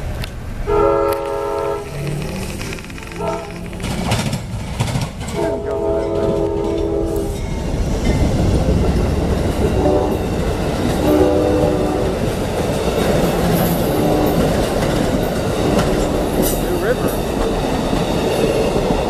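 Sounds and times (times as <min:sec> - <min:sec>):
train wheels rumbling on rails: 0:00.0 - 0:19.0
train horn blasts: 0:00.6 - 0:02.0, 0:03.0 - 0:03.6, 0:05.3 - 0:07.4, 0:09.6 - 0:10.4, 0:11.0 - 0:12.2, 0:13.9 - 0:14.6.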